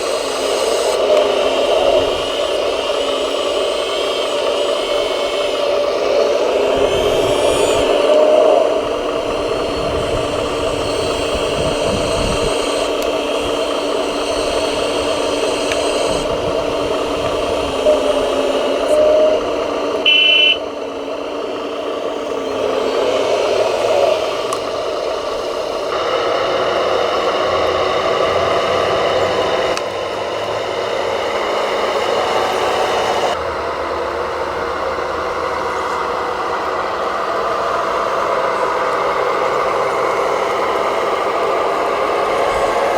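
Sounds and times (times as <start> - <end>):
small electric motors whirring: 0.0 - 42.9
short high beep: 20.1 - 20.6.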